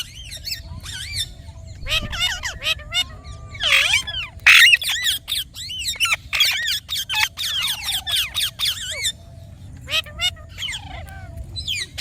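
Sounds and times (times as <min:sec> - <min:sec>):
parrot squawking: 0:01.8 - 0:09.2.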